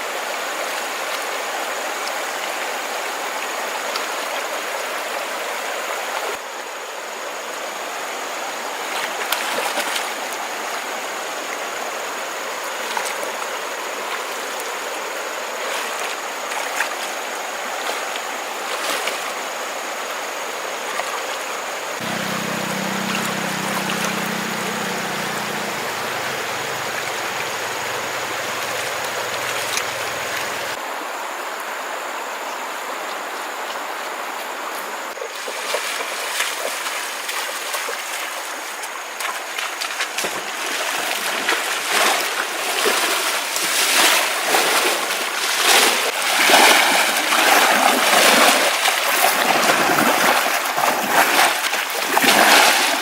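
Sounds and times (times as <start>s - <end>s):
stream water running: 0.0s - 53.0s
splashing in water: 22.0s - 30.8s, 35.2s - 53.0s.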